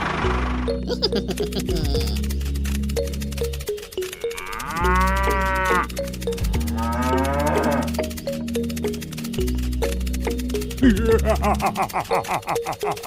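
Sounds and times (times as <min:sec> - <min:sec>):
background music with steady beat: 0:00.2 - 0:13.0
cow mooing: 0:04.2 - 0:06.0, 0:06.6 - 0:08.1.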